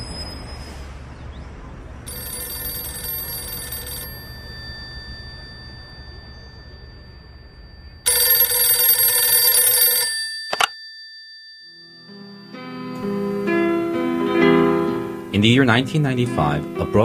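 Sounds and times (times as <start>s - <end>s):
telephone bell ringing: 2.1s - 13.5s
telephone receiver click: 10.5s - 10.8s.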